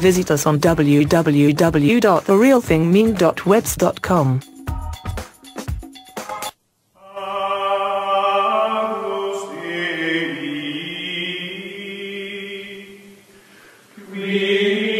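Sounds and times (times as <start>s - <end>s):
voices chanting sustained notes: 7.0s - 13.3s.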